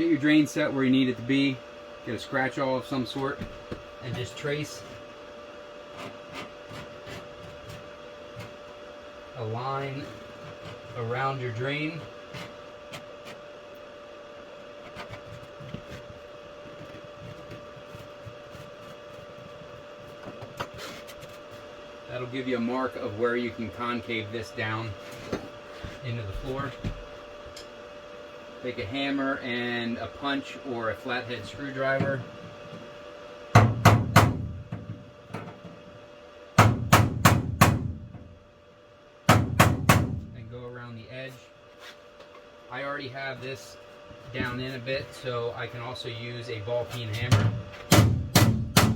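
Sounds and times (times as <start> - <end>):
steady background hum: 0.0 - 48.9
hammer striking a punch: 33.6 - 34.6, 36.6 - 38.0, 39.3 - 40.3, 47.4 - 48.9.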